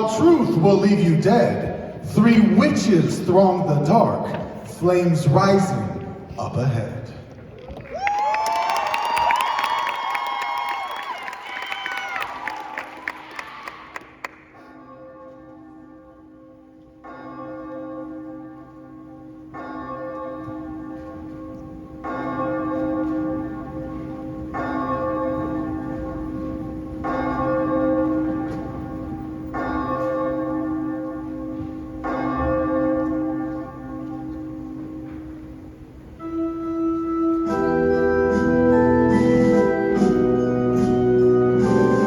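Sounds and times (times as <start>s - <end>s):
church bell tolling: 14.6s - 42.0s.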